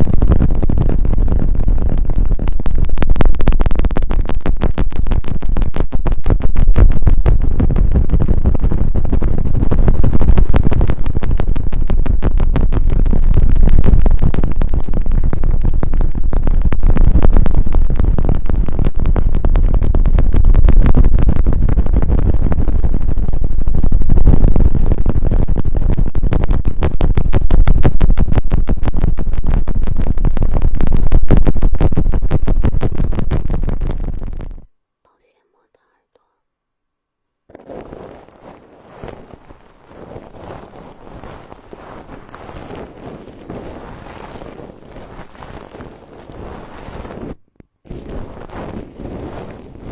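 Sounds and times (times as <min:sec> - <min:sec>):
heavy low rumble: 0:00.0 - 0:34.7
prop scratching against microphone: 0:37.5 - 0:49.9.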